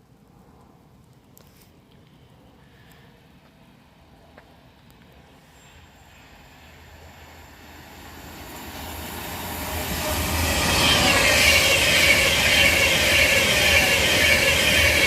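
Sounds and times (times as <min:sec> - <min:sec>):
electric train approaching: 0:05.3 - 0:15.0.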